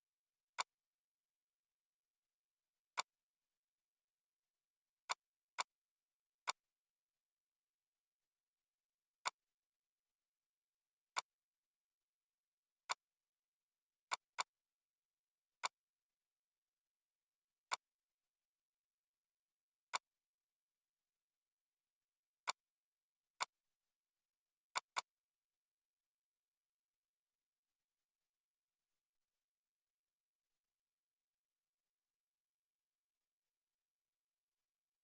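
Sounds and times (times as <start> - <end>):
computer mouse clicks: 0.5 - 0.8, 6.5 - 6.7, 14.1 - 14.6, 15.6 - 15.8, 17.6 - 17.9, 22.4 - 22.7, 24.7 - 25.2.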